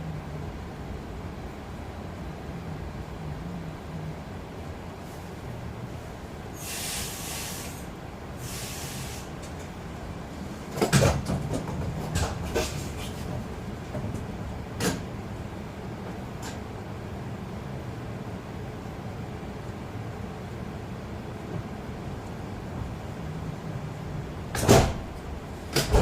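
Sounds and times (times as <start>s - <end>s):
train low rumble: 0.0s - 26.0s
air hisses: 6.5s - 9.5s
clatter of sharp knocks: 10.7s - 15.1s, 25.7s - 26.0s.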